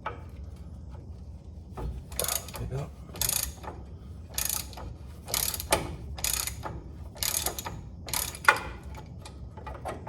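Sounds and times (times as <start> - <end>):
ratchet wrench clicking: 2.1 - 2.6, 3.2 - 3.7, 4.3 - 9.1.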